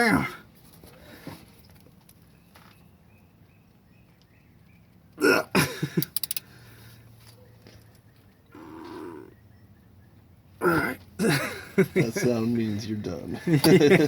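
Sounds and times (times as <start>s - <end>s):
man grunting and straining: 5.2s - 5.8s, 10.6s - 11.6s
ratchet clicks: 6.0s - 6.5s.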